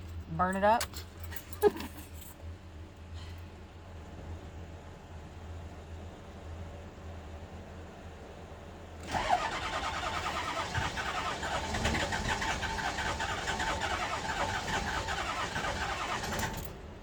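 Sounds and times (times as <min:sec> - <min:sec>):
diesel engine cranking: 0:09.0 - 0:17.0.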